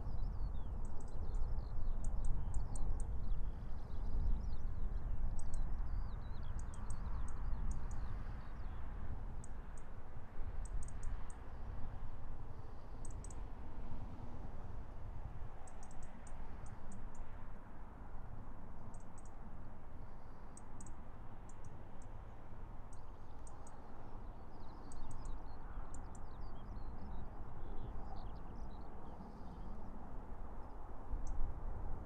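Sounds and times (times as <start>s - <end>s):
small birds chirping: 0.0s - 8.8s, 22.9s - 29.8s.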